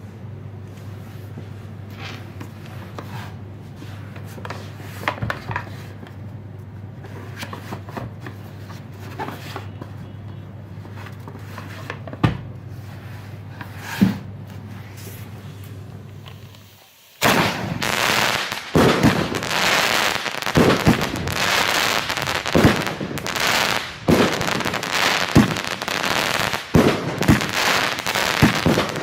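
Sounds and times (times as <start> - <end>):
low hum: 14.5 - 19.5.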